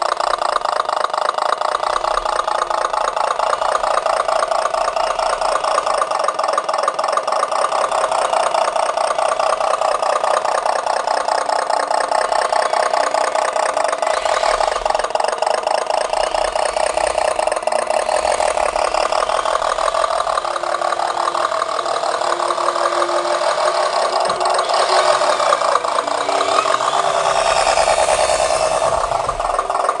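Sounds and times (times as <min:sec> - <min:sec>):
motor buzzing: 0:07.6 - 0:30.0.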